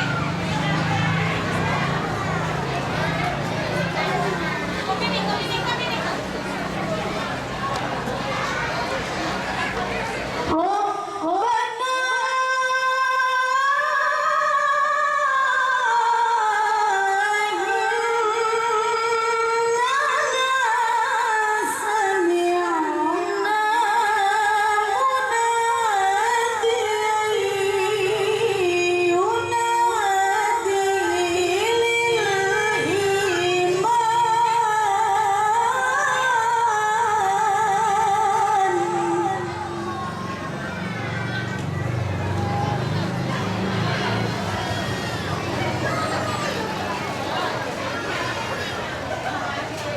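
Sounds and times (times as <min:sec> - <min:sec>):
woman reciting melodiously: 0:10.5 - 0:40.6.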